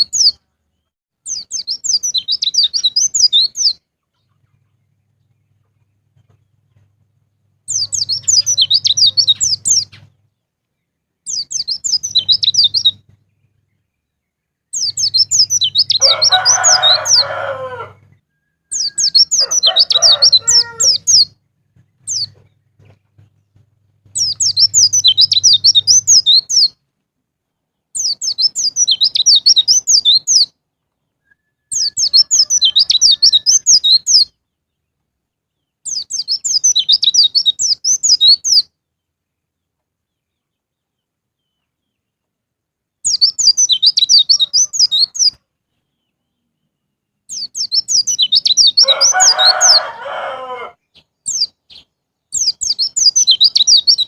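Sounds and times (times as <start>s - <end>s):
bird twittering song: 0.0s - 26.9s, 27.5s - 42.3s, 43.0s - 54.0s
lower harsh bird call: 14.7s - 21.4s, 47.4s - 54.0s.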